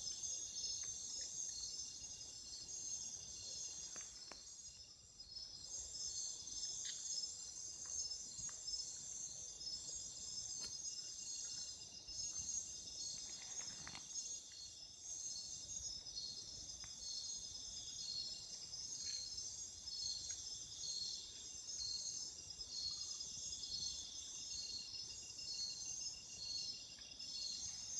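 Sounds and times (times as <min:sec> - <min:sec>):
insects trilling: 0:00.0 - 0:27.9.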